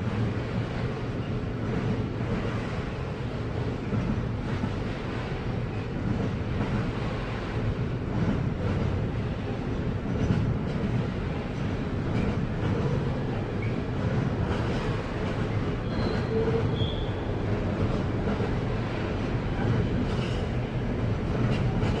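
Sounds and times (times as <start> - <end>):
freight train rumbling: 0.0 - 22.0
high wheel squeals: 15.8 - 17.2.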